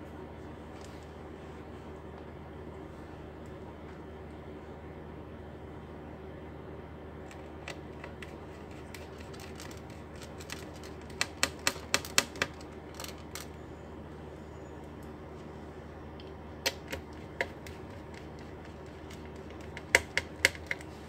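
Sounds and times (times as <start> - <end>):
steady low hum: 0.0 - 21.0
laptop parts clicking: 7.3 - 13.6, 16.7 - 20.9.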